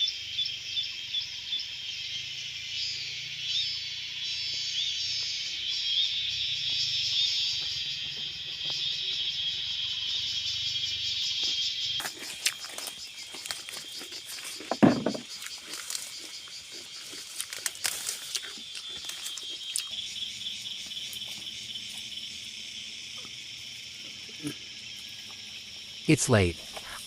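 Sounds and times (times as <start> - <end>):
insects chirring: 0.0 - 27.0
heavy thump: 14.7 - 15.2.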